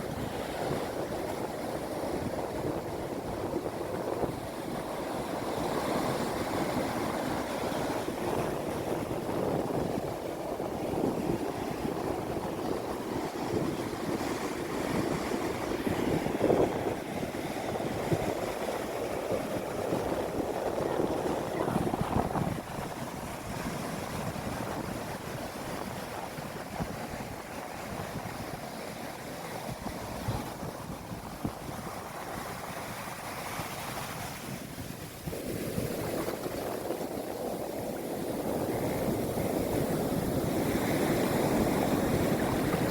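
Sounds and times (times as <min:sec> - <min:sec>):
sea waves breaking: 0:00.0 - 0:42.9.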